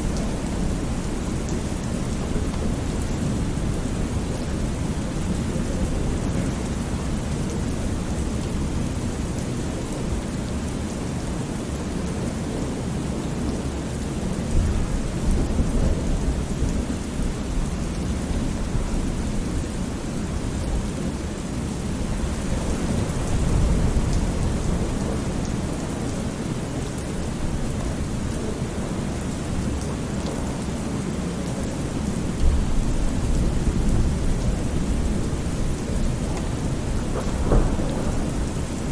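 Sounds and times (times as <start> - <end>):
heavy rain: 0.0 - 38.9
low rolling thunder: 22.2 - 25.9, 32.4 - 38.9.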